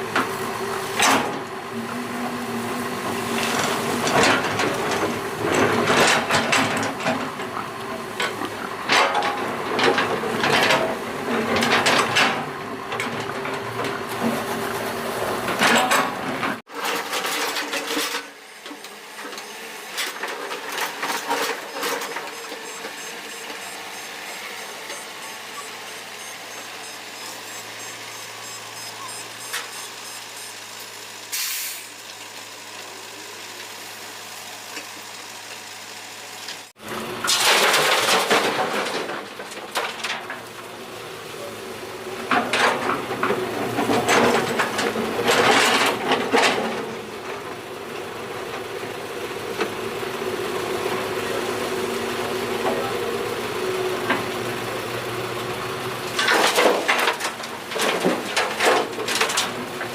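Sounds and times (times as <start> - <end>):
excavator diesel engine running: 0.0 - 59.9
excavator clanks and knocks: 0.1 - 1.5, 3.4 - 14.6, 15.4 - 29.9, 37.2 - 40.6, 42.2 - 47.7, 56.1 - 59.9.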